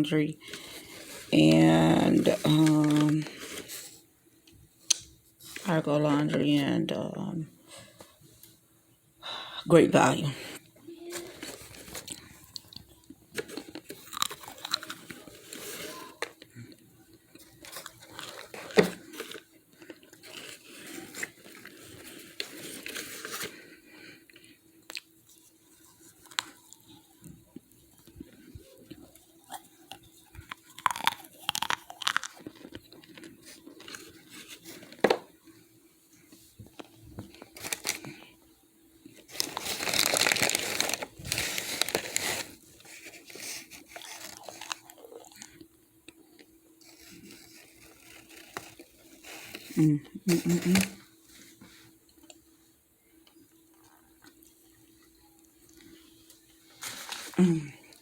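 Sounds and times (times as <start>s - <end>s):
faint steady hum: 0.0s - 58.0s
starch chunks crunching in paper bag: 0.4s - 3.9s, 11.0s - 16.6s, 17.4s - 23.8s, 28.3s - 35.4s, 36.7s - 38.3s, 39.1s - 45.6s, 46.8s - 51.1s.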